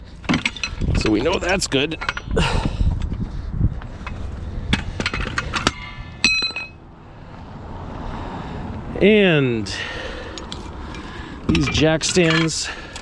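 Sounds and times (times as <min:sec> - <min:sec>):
metal tools knocking and clicking: 0:00.2 - 0:02.5, 0:04.0 - 0:06.8, 0:11.5 - 0:13.0
ringing metallic clink: 0:05.0 - 0:06.8.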